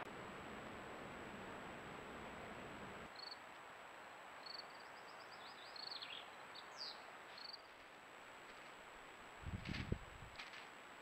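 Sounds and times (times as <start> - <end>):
small birds chirping: 3.1 - 3.5, 4.4 - 7.9.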